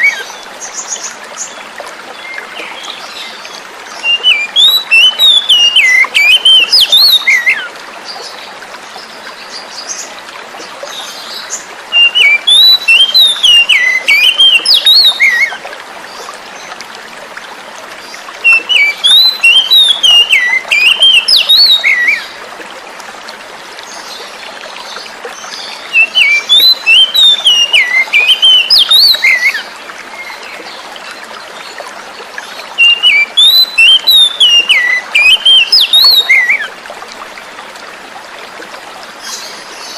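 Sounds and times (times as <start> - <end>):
flowing water: 0.0 - 39.9
bird singing whistled phrases: 4.0 - 7.7, 11.9 - 15.6, 18.4 - 22.3, 25.9 - 29.6, 32.8 - 36.7.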